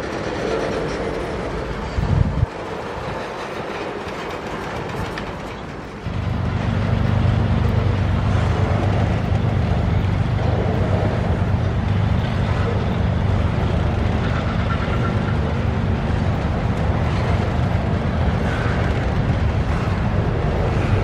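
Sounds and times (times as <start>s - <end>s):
train rolling on rails: 0.0s - 21.0s
steady low drone: 6.0s - 21.0s.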